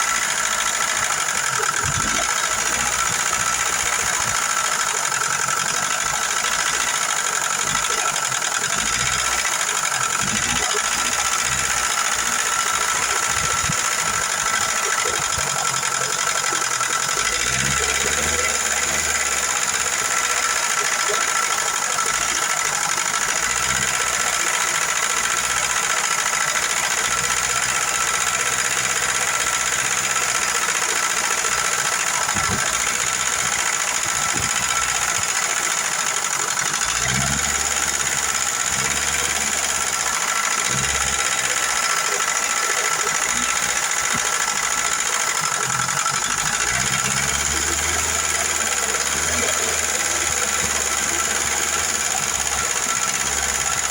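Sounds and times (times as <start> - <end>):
car engine idling: 0.0 - 53.9.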